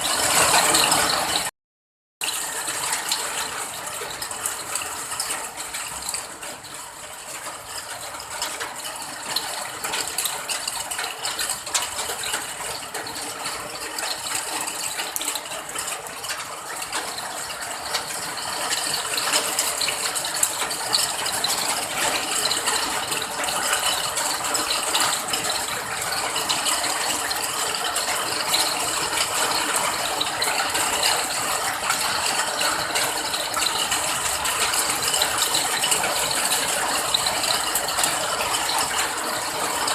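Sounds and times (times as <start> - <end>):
rain pattering: 0.0 - 1.5, 2.2 - 39.9.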